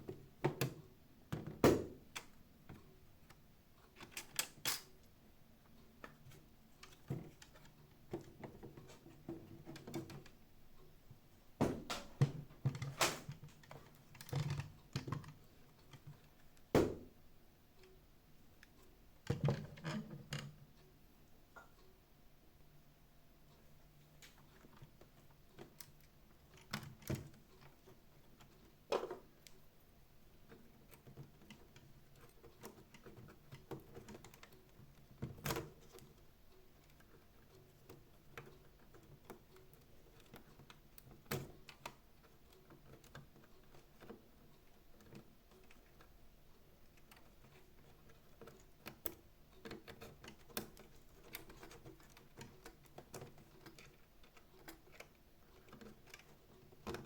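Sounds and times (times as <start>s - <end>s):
plastic parts clicking and knocking: 0.0s - 5.0s, 6.0s - 10.4s, 11.6s - 17.1s, 18.6s - 20.6s, 24.2s - 29.6s, 30.4s - 57.0s.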